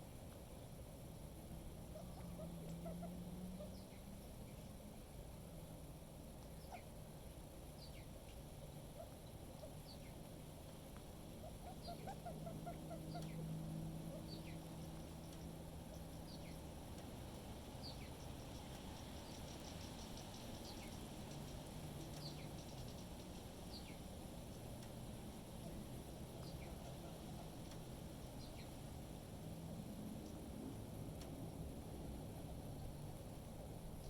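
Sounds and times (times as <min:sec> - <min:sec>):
low steady hum: 0:00.0 - 0:34.0
small birds calling: 0:01.8 - 0:04.8, 0:06.4 - 0:29.4.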